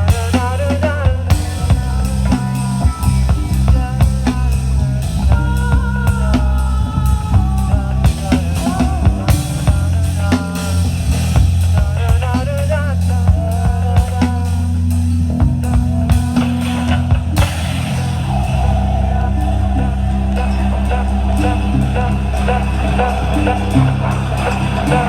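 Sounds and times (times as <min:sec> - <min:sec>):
drum kit beating: 0:00.0 - 0:25.0
loud bass: 0:00.0 - 0:25.0
rock band playing live: 0:00.0 - 0:25.0
lead line of bending notes: 0:14.5 - 0:25.0.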